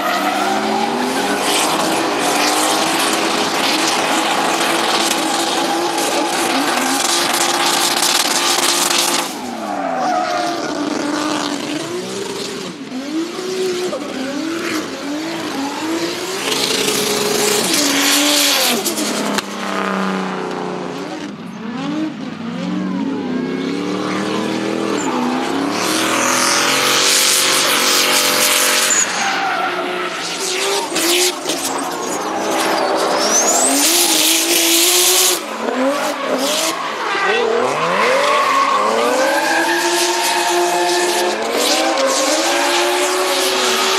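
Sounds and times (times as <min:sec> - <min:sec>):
car engines revving hard: 0:00.0 - 0:43.9
tyre squeal: 0:23.4 - 0:43.8.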